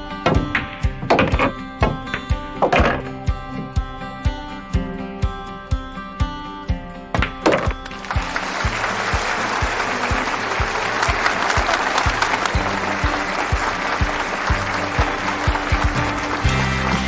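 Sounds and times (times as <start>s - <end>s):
background music with steady beat: 0.0s - 17.0s
audience applauding: 7.9s - 17.0s.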